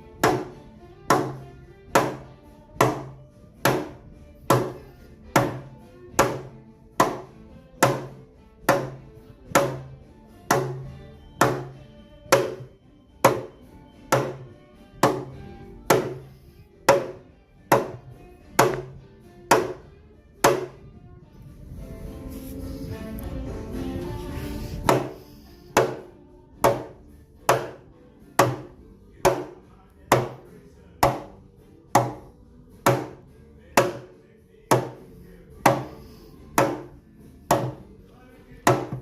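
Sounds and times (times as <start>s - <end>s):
hammer strikes ringing: 10.5s - 16.3s.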